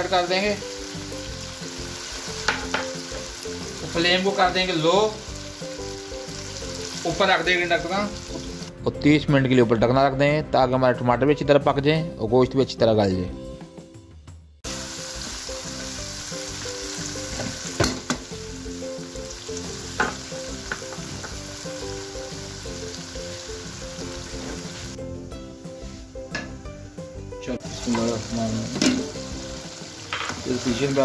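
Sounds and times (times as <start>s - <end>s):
food sizzling in hot oil: 0.0s - 8.8s, 14.6s - 31.0s
wooden spatula knocking pan: 2.4s - 3.0s.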